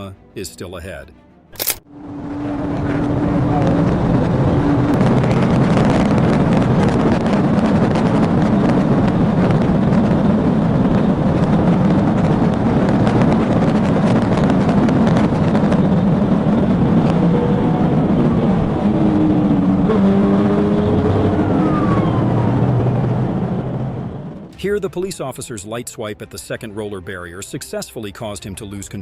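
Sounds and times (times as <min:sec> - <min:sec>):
car driving at high speed: 0:01.9 - 0:24.7.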